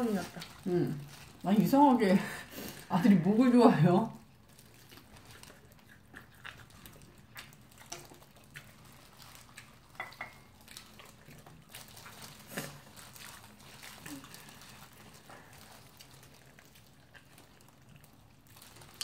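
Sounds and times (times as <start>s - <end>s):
wet chewing and lip-smacking: 4.2s - 19.0s.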